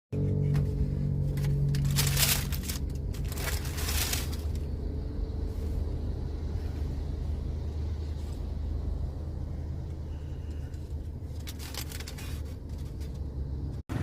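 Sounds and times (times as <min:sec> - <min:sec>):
steady low hum: 0:00.2 - 0:14.0
paper rustling: 0:01.4 - 0:04.7.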